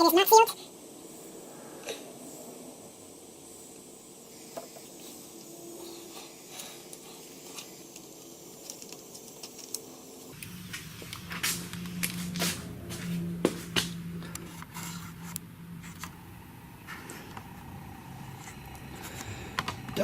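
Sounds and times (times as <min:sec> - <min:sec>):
hot air hissing: 0:00.5 - 0:13.0, 0:13.7 - 0:20.0
low hum: 0:10.0 - 0:20.0.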